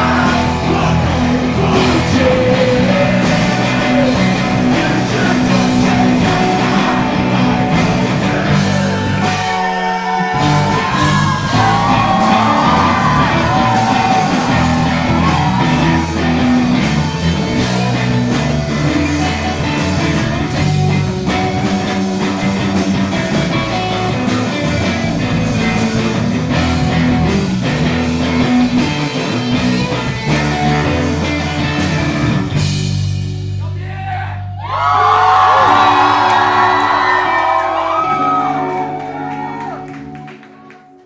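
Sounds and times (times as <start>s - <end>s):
person singing: 0.0s - 17.9s
live rock band playing: 0.0s - 33.6s, 34.8s - 40.7s.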